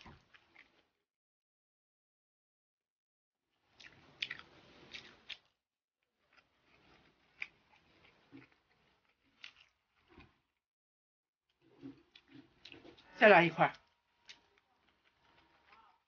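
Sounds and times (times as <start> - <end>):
wet chewing mouth sounds: 3.7 - 5.5, 6.2 - 10.5, 11.6 - 13.0.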